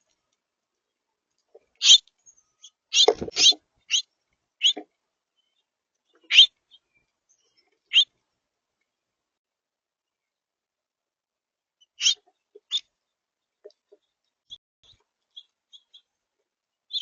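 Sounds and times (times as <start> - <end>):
songbird calls: 1.8 - 2.0, 2.6 - 4.8, 5.4 - 8.1, 11.8 - 12.9.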